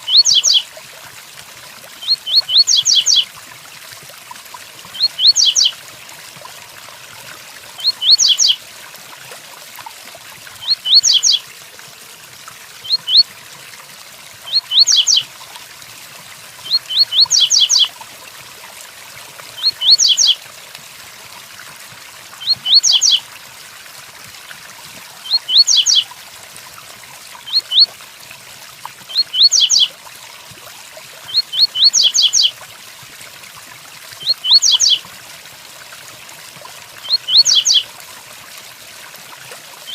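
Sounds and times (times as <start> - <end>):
bird singing whistled notes: 0.0 - 0.6, 2.0 - 3.2, 5.0 - 5.7, 7.8 - 8.6, 10.6 - 11.4, 12.8 - 13.2, 14.5 - 15.2, 16.7 - 17.9, 19.6 - 20.4, 22.4 - 23.2, 25.3 - 26.1, 29.1 - 29.9, 31.3 - 32.5, 34.2 - 35.0, 37.1 - 37.8.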